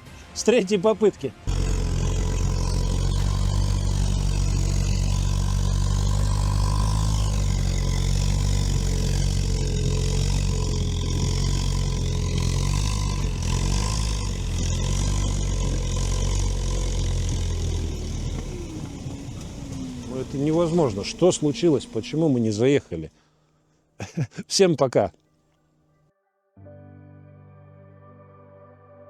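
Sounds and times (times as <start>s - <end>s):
wavering whine: 1.5s - 22.6s
vehicle engine under load: 1.5s - 23.2s.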